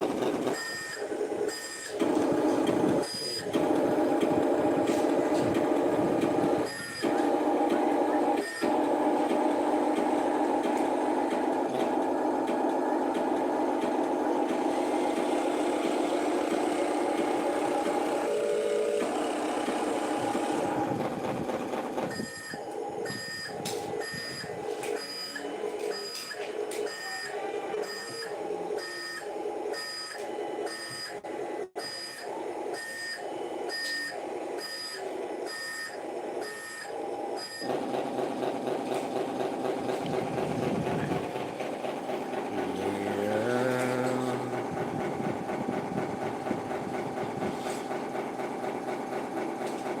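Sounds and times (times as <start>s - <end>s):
simulated diesel engine: 0.0s - 31.8s, 32.8s - 50.0s
toy truck reversing beeps: 0.5s - 2.2s, 3.0s - 3.5s, 6.6s - 7.3s, 8.1s - 8.8s, 22.1s - 37.7s.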